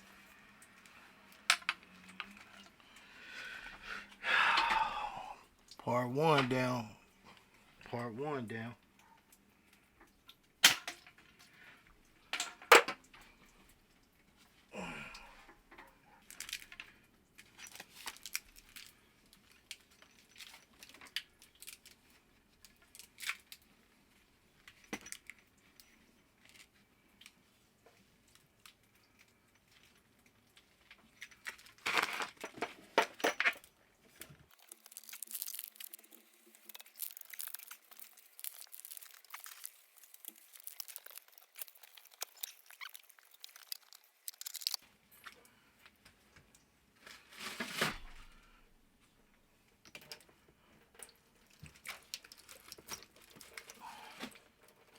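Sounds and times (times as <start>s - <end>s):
clicks and scrapes of tools: 31.1s - 45.4s.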